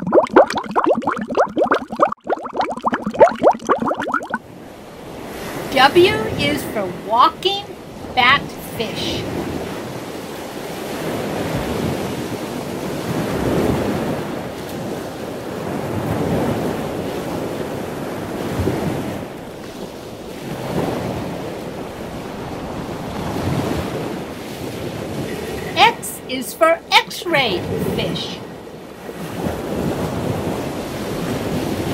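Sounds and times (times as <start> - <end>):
rushing surf-like water: 0.0 - 31.9.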